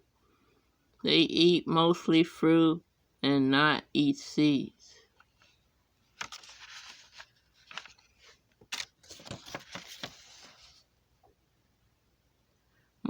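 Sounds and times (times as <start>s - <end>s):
crackling rustling noise: 5.0s - 10.9s.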